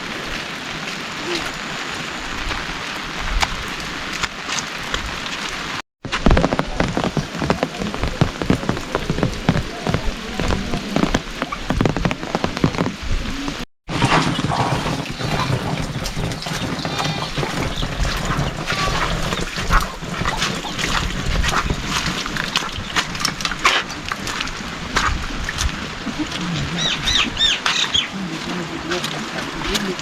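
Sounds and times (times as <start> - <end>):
heavy rain falling: 0.0 - 30.0
animal calling: 26.2 - 28.3.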